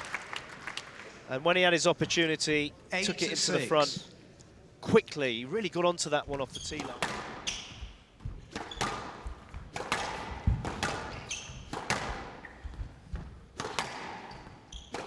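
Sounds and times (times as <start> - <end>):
ball smacking court walls: 6.3 - 15.0
shoe squeaks on court floor: 6.5 - 9.2, 10.8 - 11.8, 14.2 - 15.0
squash ball hitting rackets: 6.7 - 15.0.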